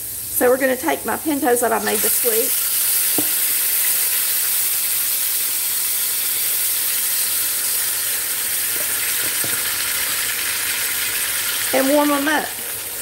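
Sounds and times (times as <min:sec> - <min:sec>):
beans sizzling in grease: 0:00.0 - 0:13.0.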